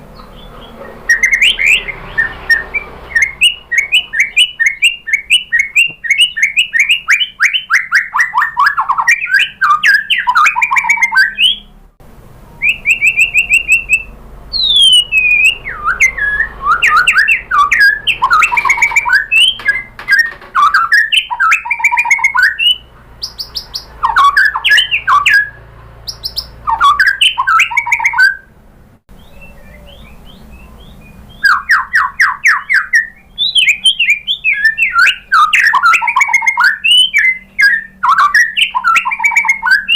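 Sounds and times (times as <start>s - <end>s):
songbird singing loudly: 0.0s - 11.8s, 12.5s - 28.5s, 29.1s - 39.9s.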